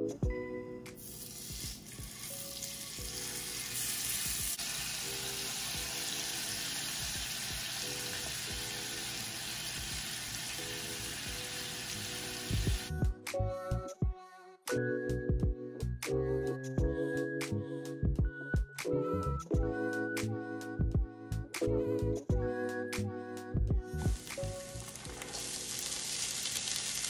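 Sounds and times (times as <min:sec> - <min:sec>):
fish sizzling in oil: 0:01.0 - 0:12.9, 0:24.1 - 0:27.0.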